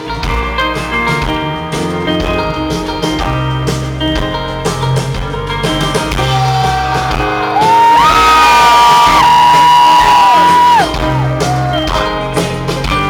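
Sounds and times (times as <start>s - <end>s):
loud rock band music: 0.0s - 13.0s.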